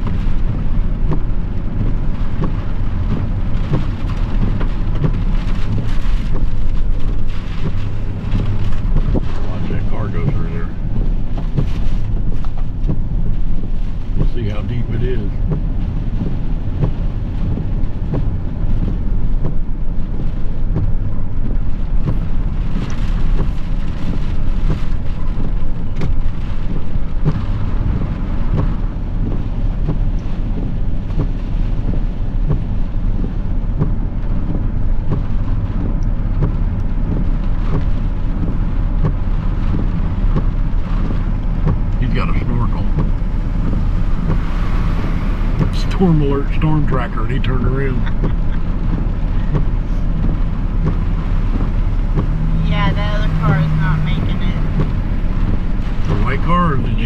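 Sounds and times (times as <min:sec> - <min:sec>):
light ticks: 0:00.0 - 0:09.4, 0:10.2 - 0:19.6, 0:20.2 - 0:42.0, 0:48.0 - 0:52.3
low rumble inside car: 0:00.0 - 0:57.0
rain on a vehicle: 0:00.0 - 0:57.0
storm wind: 0:00.0 - 0:57.0.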